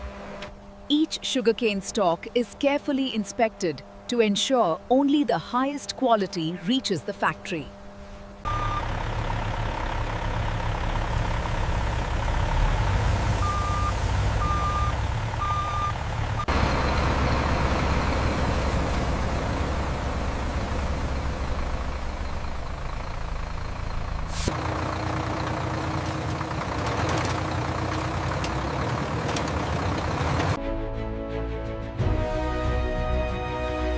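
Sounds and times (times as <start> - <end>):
truck engine running: 8.4 - 30.6
reversing beeps: 8.5 - 8.9, 13.4 - 18.4.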